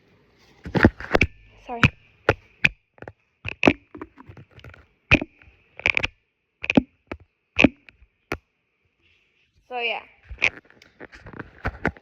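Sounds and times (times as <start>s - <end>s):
sharp clicks and taps of toys: 0.7s - 8.4s.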